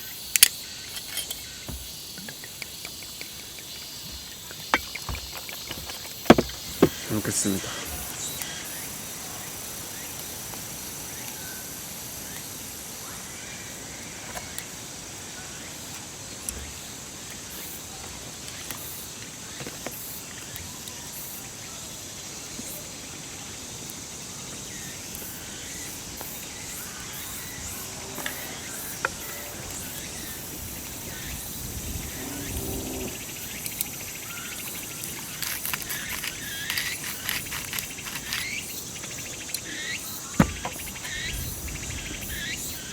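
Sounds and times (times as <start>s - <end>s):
crickets chirping: 0.0s - 42.9s
light clicks and knocks: 0.4s - 7.5s, 40.4s - 41.2s.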